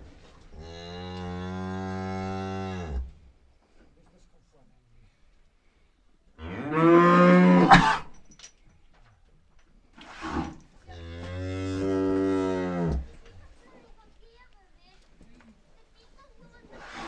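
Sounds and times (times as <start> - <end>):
cow mooing: 6.4 - 7.8, 10.9 - 13.1.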